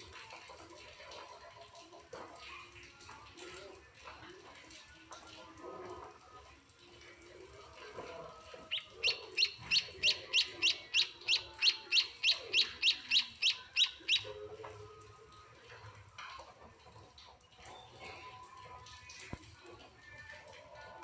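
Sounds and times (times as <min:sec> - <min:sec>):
chick begging chirps: 0:08.7 - 0:14.4.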